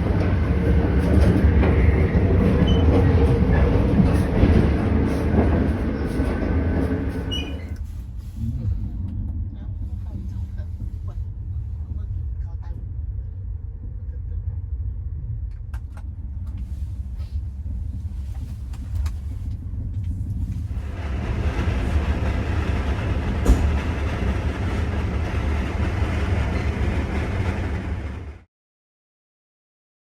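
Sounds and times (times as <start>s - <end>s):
train rumbling: 0.0s - 28.5s.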